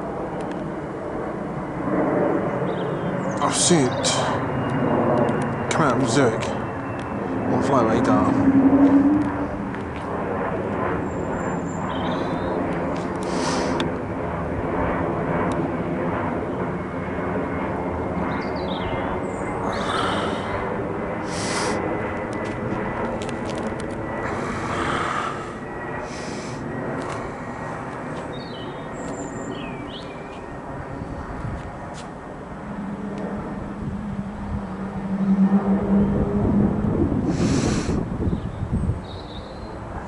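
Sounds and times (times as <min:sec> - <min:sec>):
airliner passing overhead: 0:00.0 - 0:40.0.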